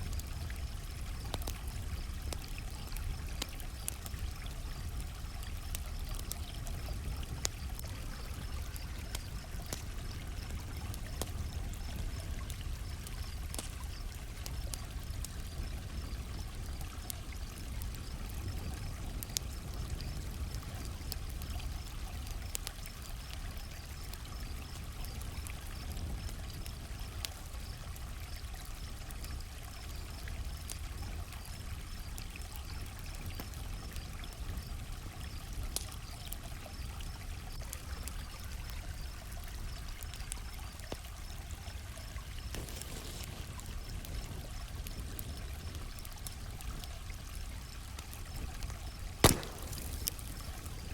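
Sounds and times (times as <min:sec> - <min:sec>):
campfire crackling and popping: 0:00.0 - 0:50.9
crickets chirping: 0:23.2 - 0:32.8, 0:36.7 - 0:50.9
creek water flowing: 0:37.4 - 0:50.9.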